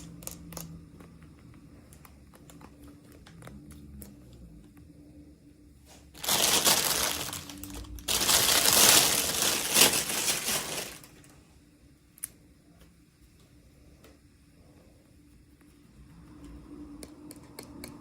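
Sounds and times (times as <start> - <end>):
plastic packaging crinkling: 6.2 - 11.3.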